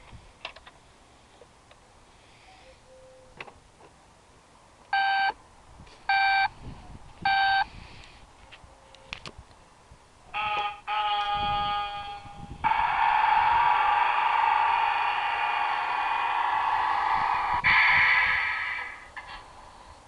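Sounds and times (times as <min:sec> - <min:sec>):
toy short beeps: 0:05.0 - 0:05.3, 0:07.3 - 0:07.6.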